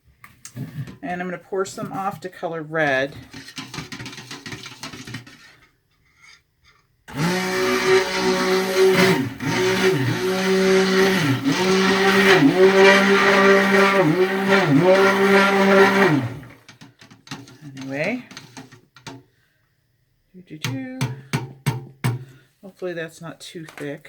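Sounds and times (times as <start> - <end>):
stick blender humming: 7.1 - 16.7.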